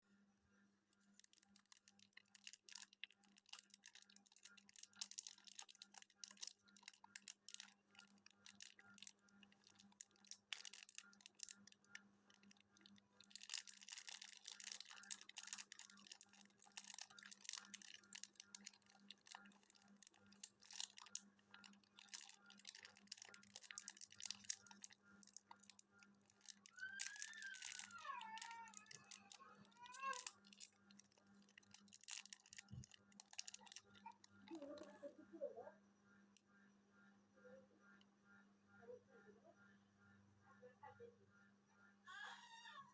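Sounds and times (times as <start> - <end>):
faint crackling and rustling: 0.1 - 36.7
steady low hum: 27.4 - 42.1.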